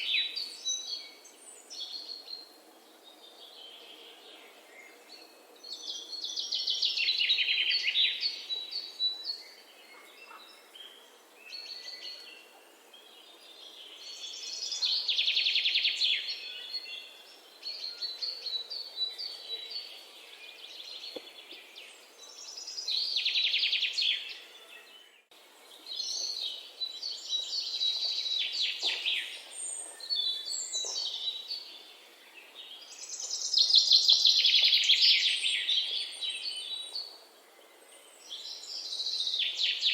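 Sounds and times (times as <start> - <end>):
soft bird chirps and calls: 0.0 - 39.9
songbird trilling song: 3.2 - 39.9.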